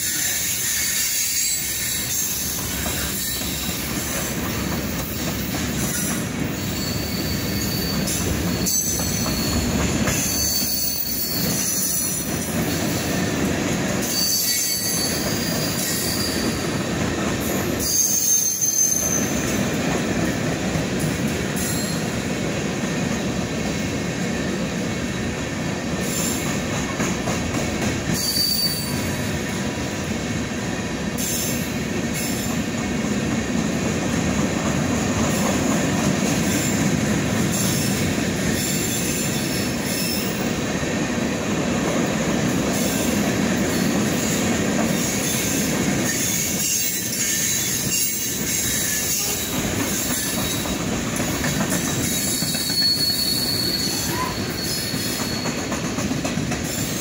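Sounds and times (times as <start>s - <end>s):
steel wheels rumbling on rail: 0.0s - 57.0s
high-pitched wheel squeals: 6.5s - 12.2s, 14.0s - 16.6s, 17.8s - 19.4s, 28.2s - 29.2s, 52.0s - 55.6s
wheels clicking over rail joints: 46.0s - 53.1s, 54.0s - 57.0s.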